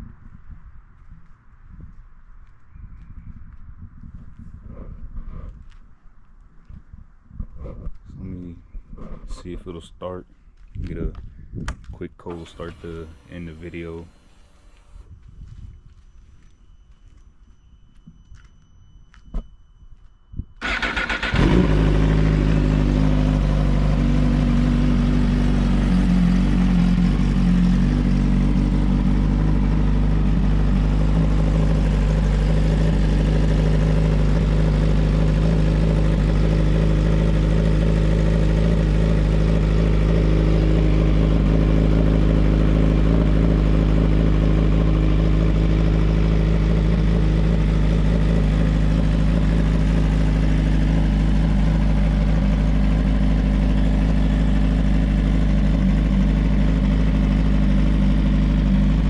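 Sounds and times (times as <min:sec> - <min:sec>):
motorcycle engine starting and idling: 0:12.3 - 0:15.1, 0:20.6 - 0:59.0.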